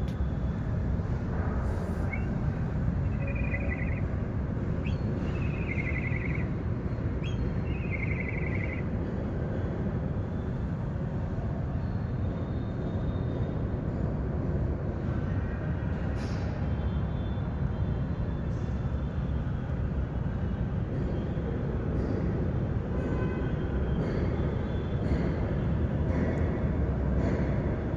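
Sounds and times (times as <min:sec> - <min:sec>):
steady low rumble: 0:00.0 - 0:10.8
bird call with rattling trill: 0:02.0 - 0:02.4, 0:03.0 - 0:04.2, 0:04.8 - 0:08.9.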